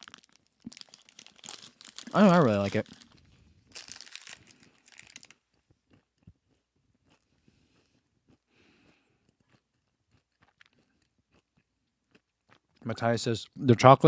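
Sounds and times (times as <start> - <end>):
plastic wrapper crinkling: 0.0 - 5.4
chewing and crunching food: 0.0 - 13.6.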